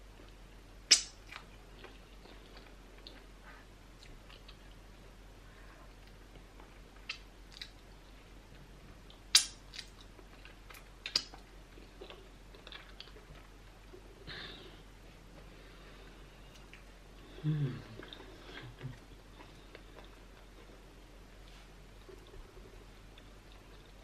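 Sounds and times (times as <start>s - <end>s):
wet mouth smacks and clicks: 0.9s - 1.4s, 7.0s - 7.8s, 9.3s - 10.0s, 11.0s - 11.4s
chewing food: 1.2s - 5.1s, 5.9s - 14.2s, 17.8s - 21.0s, 21.9s - 24.0s.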